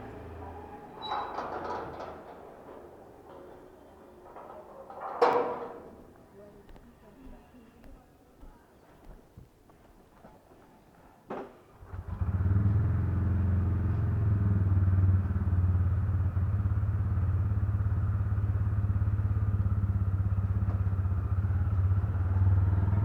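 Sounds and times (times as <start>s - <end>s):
motorcycle engine idling: 11.8s - 23.0s.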